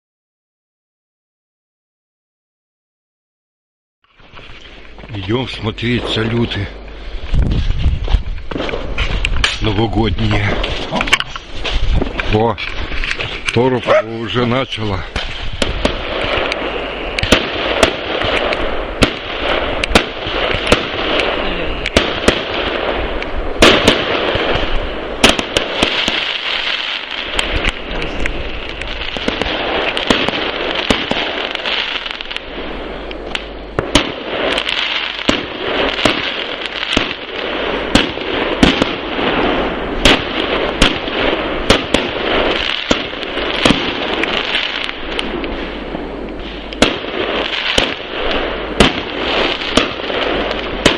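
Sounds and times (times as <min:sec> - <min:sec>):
fireworks crackling and banging: 0:04.1 - 0:50.9.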